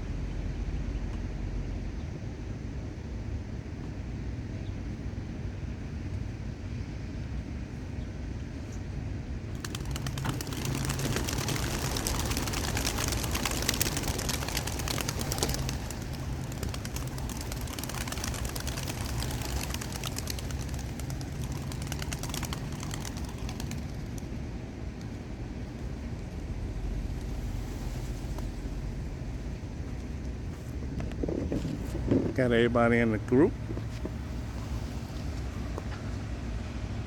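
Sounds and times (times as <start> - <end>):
steady low hum: 0.0 - 37.0
pigeons flapping wings: 9.5 - 24.4.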